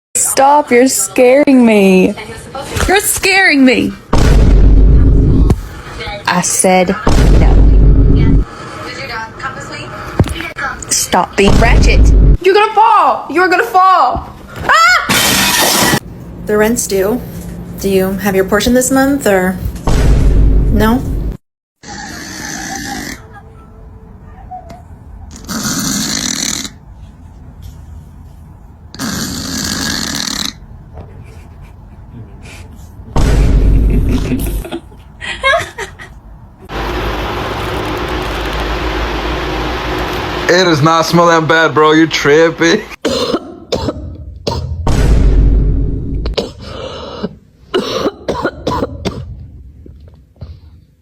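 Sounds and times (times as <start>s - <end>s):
loud rasping snoring: 21.8s - 23.2s, 25.3s - 26.8s, 28.9s - 30.6s
harsh coughs: 43.0s - 44.8s, 46.3s - 49.4s.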